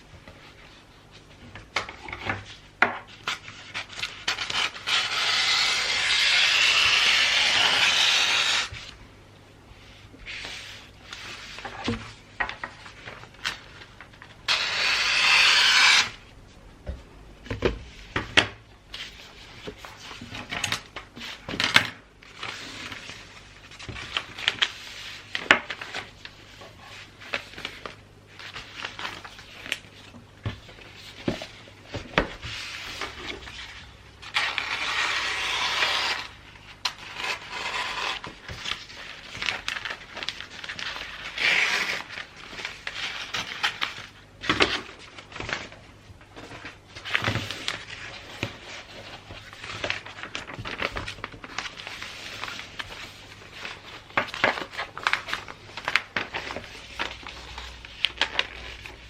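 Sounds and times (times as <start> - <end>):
paper ripping: 3.8 - 8.8, 14.5 - 16.2
wrapping paper rustling: 19.0 - 59.0.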